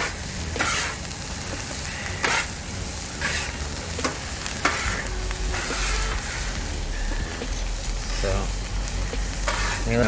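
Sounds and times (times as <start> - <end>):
onions sizzling on griddle: 0.0 - 10.0
spatula scraping metal plate: 9.4 - 9.8.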